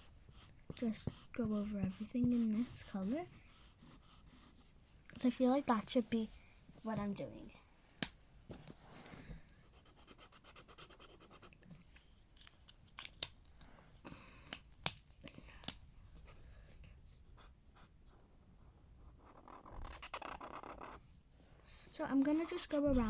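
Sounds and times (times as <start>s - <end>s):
colouring tool scratching paper: 0.0s - 4.7s, 19.2s - 21.0s, 21.9s - 23.0s.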